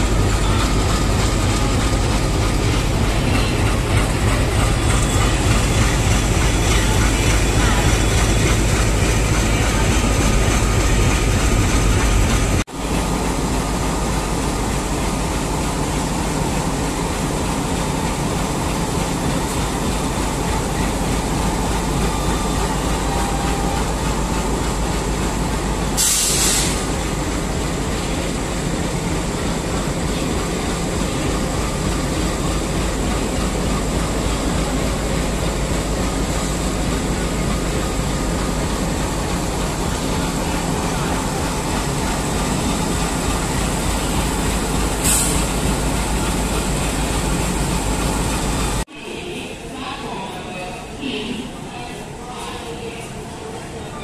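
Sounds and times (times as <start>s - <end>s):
diesel locomotive engine rumbling: 0.0s - 54.0s
train and station rumble: 0.0s - 54.0s
loud burst of hiss: 26.0s - 27.0s, 44.9s - 45.6s.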